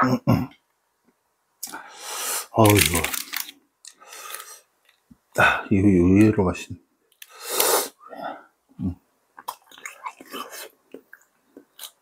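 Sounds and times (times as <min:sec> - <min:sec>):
wet chewing smacks: 0:09.4 - 0:12.0.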